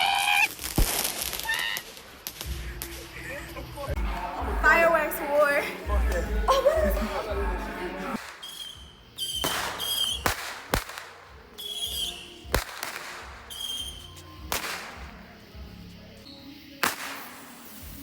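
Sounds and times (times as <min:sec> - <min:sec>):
fireworks bangs: 0:00.4 - 0:02.8, 0:08.2 - 0:15.4, 0:16.8 - 0:18.0
whistling rockets: 0:08.2 - 0:15.4, 0:16.2 - 0:18.0.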